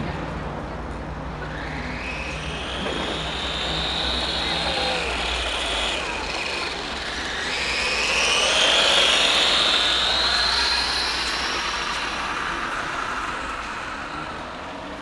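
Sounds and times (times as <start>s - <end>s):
toy truck motor whining: 1.4s - 14.2s.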